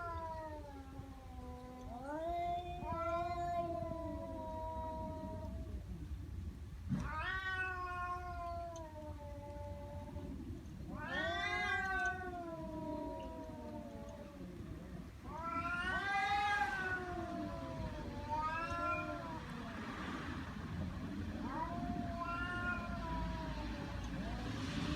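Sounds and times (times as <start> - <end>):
angry cat yowling: 0.0 - 5.8, 7.0 - 19.8, 21.3 - 24.9.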